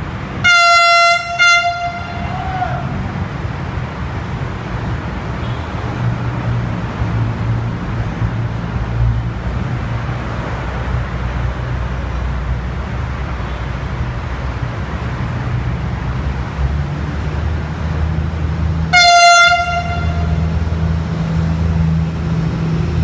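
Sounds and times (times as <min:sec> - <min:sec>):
diesel train engine rumble: 0:00.0 - 0:23.0
train horn blast: 0:00.4 - 0:02.6, 0:18.9 - 0:20.6.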